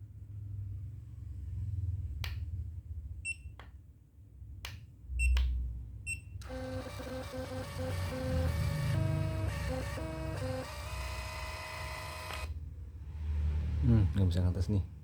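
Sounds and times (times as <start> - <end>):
printer whirring: 6.4 - 12.6.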